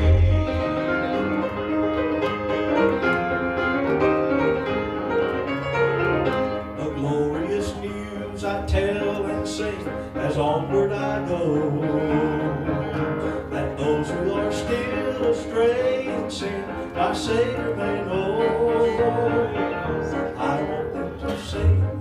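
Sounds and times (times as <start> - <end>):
instrumental gospel band with piano: 0.0 - 22.0.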